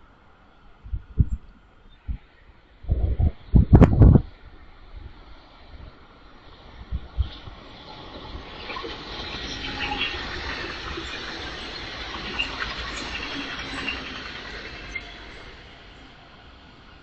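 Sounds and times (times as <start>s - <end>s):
train passing on tracks: 4.2s - 17.0s
high wheel squeaks: 8.0s - 16.0s.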